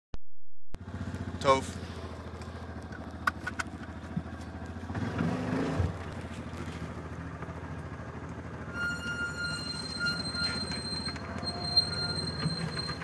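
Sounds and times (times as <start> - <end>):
engine revving: 0.8 - 11.5.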